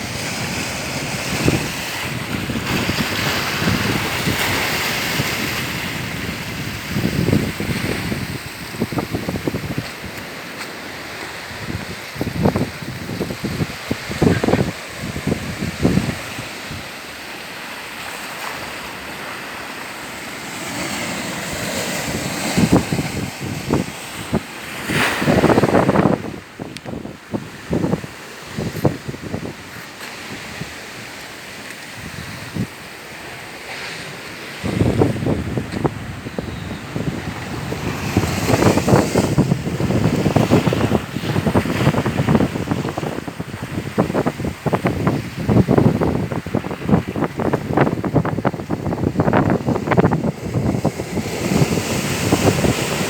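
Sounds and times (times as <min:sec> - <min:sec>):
wind gusts buffeting microphone: 0:00.0 - 0:17.4, 0:20.1 - 0:53.0
moving water: 0:00.0 - 0:53.0.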